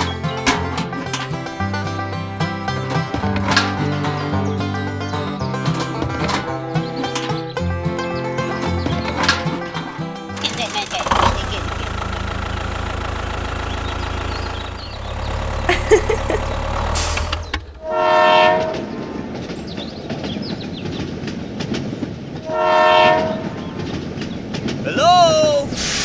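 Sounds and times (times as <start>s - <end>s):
low engine rumble: 0.0s - 18.3s
train horn blasts: 17.8s - 19.0s, 22.5s - 23.6s.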